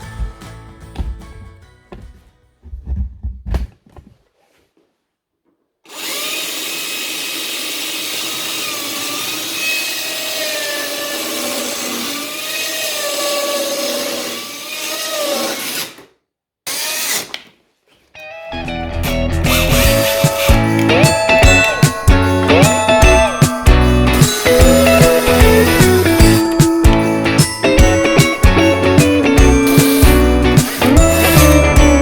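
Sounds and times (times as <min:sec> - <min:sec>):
knocks: 0:00.0 - 0:04.1
power tool cutting wood: 0:05.9 - 0:16.1, 0:16.7 - 0:17.4, 0:19.4 - 0:32.0.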